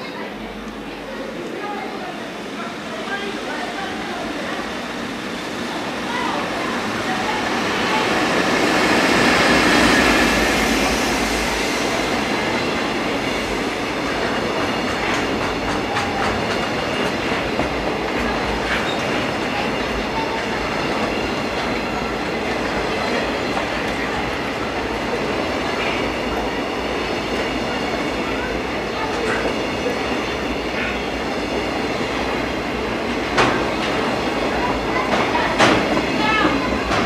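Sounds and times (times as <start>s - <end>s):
electric locomotive passing: 0.0s - 37.0s
train wheels clacking over rail joints: 13.4s - 24.4s, 33.3s - 37.0s.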